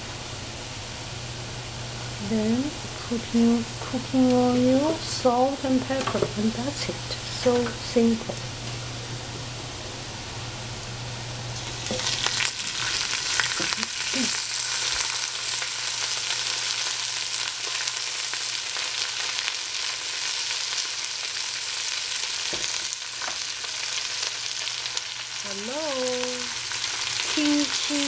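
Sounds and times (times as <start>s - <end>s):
vegetables frying in oil: 1.1s - 9.0s, 11.3s - 28.0s.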